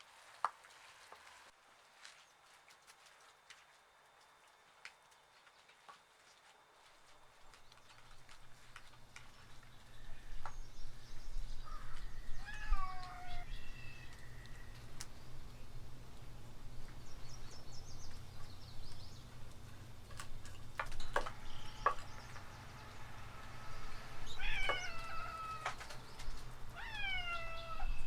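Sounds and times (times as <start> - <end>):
cat meowing: 12.4 - 13.5, 24.2 - 25.8, 26.7 - 28.0.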